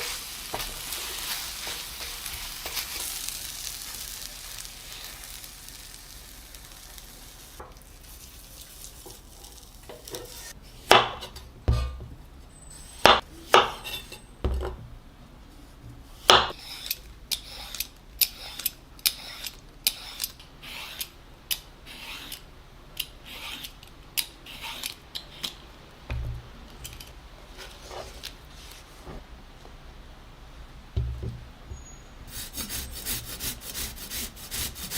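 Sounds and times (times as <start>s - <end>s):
faint sizzle: 0.0s - 10.6s
dull thumps: 26.1s - 26.6s, 31.0s - 31.8s.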